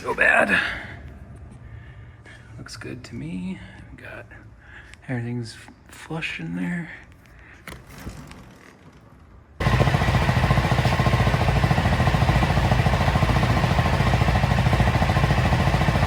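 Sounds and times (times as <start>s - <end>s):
motorcycle engine running: 9.6s - 16.0s.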